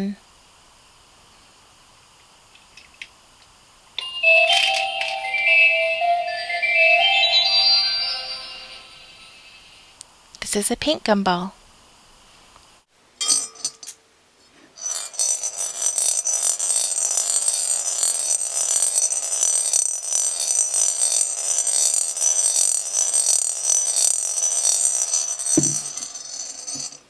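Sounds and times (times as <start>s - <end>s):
gumball clattering on spiral track: 14.8s - 27.0s.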